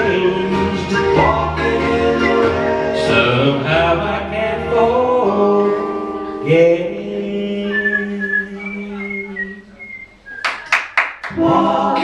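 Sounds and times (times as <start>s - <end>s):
man singing: 0.0s - 9.6s
backing music: 0.0s - 12.0s
whistled tune: 0.7s - 3.4s, 7.6s - 11.2s.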